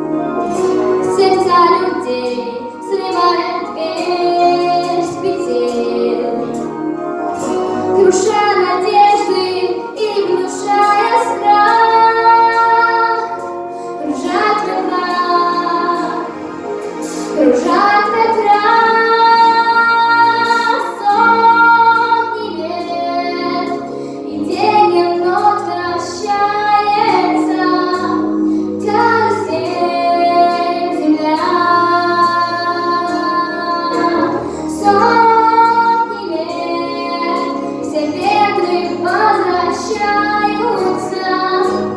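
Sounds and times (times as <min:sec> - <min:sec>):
musical accompaniment: 0:00.0 - 0:41.9
child singing: 0:01.0 - 0:06.7, 0:08.0 - 0:16.4, 0:17.3 - 0:41.9.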